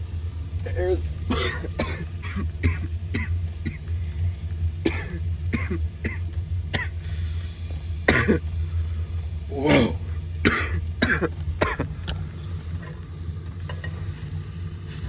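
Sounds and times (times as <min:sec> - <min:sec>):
steady low hum: 0:00.0 - 0:15.0
man coughing: 0:00.7 - 0:03.8, 0:04.9 - 0:06.2, 0:08.1 - 0:08.4, 0:09.5 - 0:12.0.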